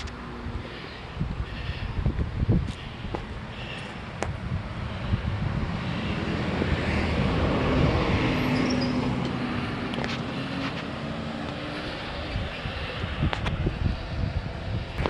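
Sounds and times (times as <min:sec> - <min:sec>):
motor vehicle passing: 0:00.0 - 0:15.0.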